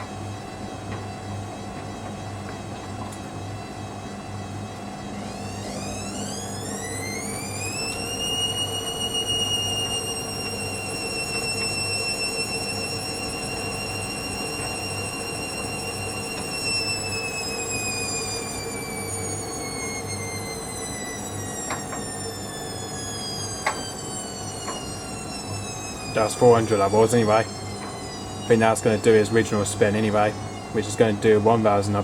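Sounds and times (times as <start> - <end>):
steady low hum: 0.0 - 32.0
washing machine motor whine: 0.0 - 32.0.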